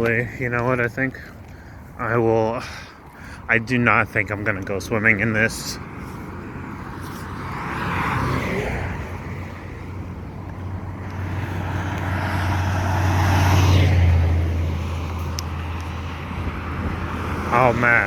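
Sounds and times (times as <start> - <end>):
engine passing by: 4.9 - 18.0.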